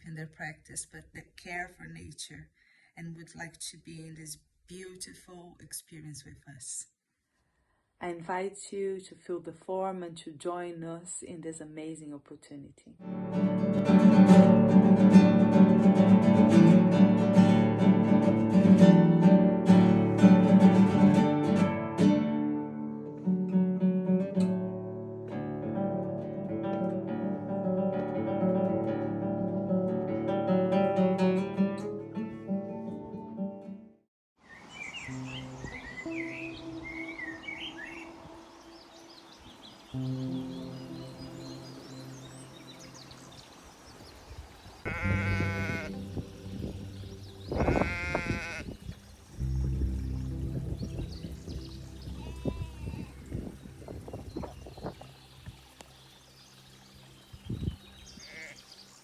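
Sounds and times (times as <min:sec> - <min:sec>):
acoustic guitar plucked and strummed: 0:13.0 - 0:34.0
sheep bleating: 0:44.8 - 0:46.1, 0:47.6 - 0:48.8, 0:52.2 - 0:53.2, 0:58.3 - 0:58.6.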